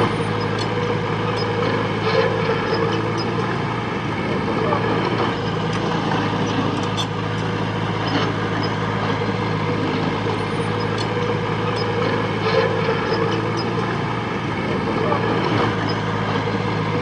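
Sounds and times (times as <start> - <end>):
heavy diesel machinery engine: 0.0 - 17.0
light metal clanks and clicks: 10.8 - 13.6.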